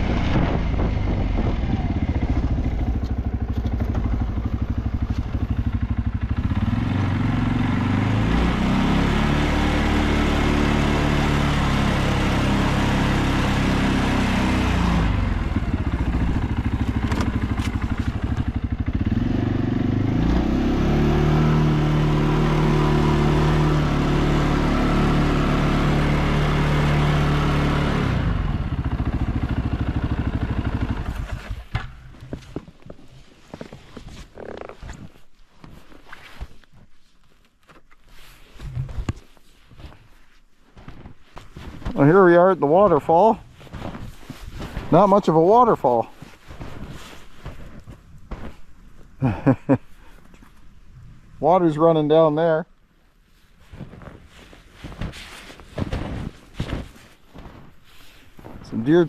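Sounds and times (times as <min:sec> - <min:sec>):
atv engine revving: 0:00.0 - 0:32.1, 0:44.6 - 0:46.1.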